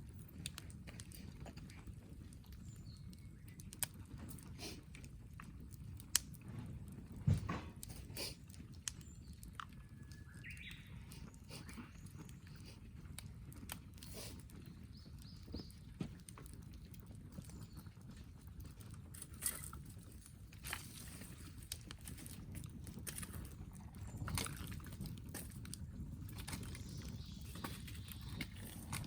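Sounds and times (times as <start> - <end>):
campfire crackling and popping: 0.0 - 29.0.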